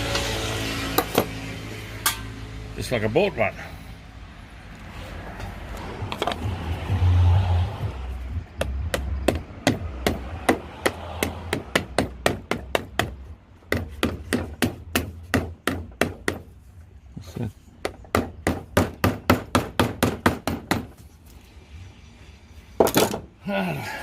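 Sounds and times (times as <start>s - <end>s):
low rumble: 5.5s - 10.0s.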